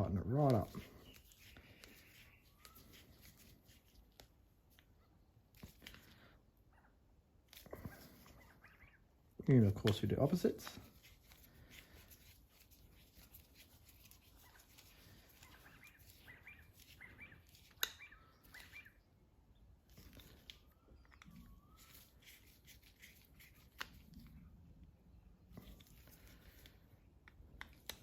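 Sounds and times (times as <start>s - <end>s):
screwdriver clicking and scraping: 12.0s - 18.7s, 25.6s - 28.0s.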